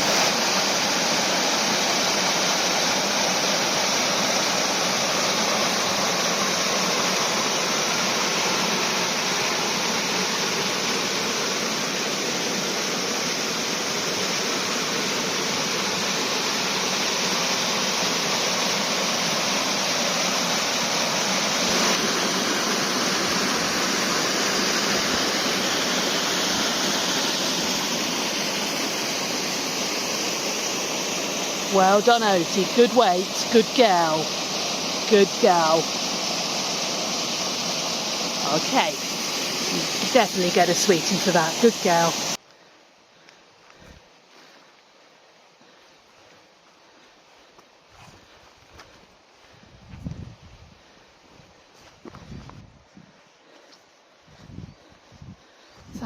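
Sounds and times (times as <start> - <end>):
waterfall rushing: 0.0 - 42.4.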